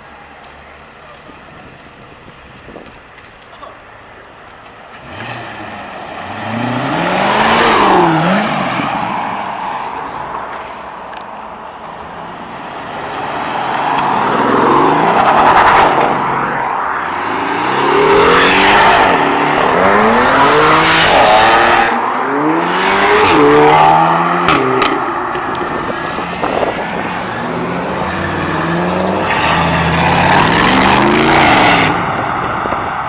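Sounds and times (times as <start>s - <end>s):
cars driving past: 4.8s - 33.0s
car engine revving: 5.0s - 9.7s, 13.0s - 33.0s.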